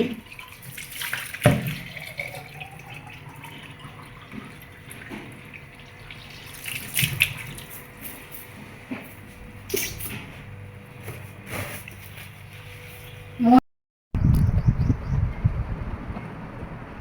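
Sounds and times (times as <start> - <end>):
tap water running into sink: 0.0 - 7.9.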